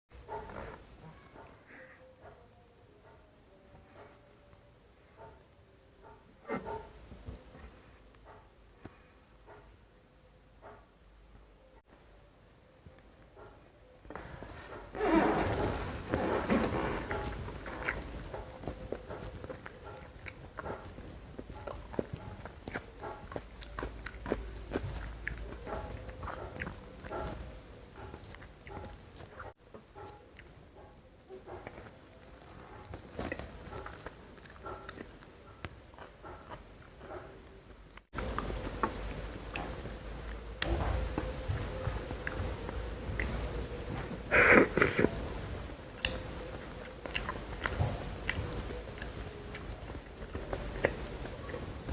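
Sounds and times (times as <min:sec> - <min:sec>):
chewing and biting crunches: 0:14.1 - 0:51.9
wet mouth clicks: 0:44.3 - 0:45.2.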